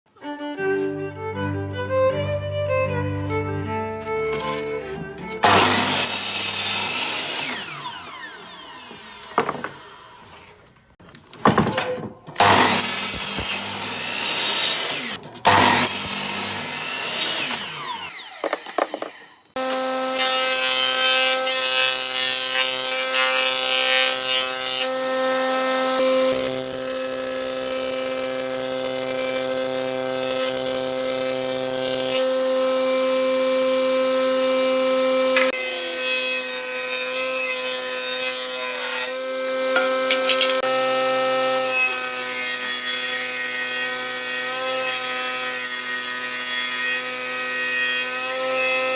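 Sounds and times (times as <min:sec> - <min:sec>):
power tool motor running: 0:05.4 - 0:10.4, 0:12.4 - 0:24.2
tool scraping wood: 0:17.2 - 0:19.5, 0:37.1 - 0:40.7.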